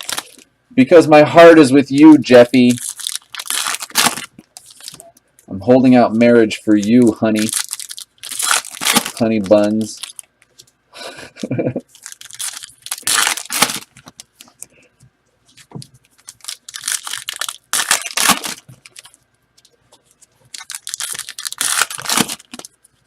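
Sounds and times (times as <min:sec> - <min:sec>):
packaging being torn open: 0:00.0 - 0:00.4, 0:02.7 - 0:05.0, 0:06.8 - 0:10.3, 0:11.9 - 0:14.4, 0:16.2 - 0:19.2, 0:20.5 - 0:22.8.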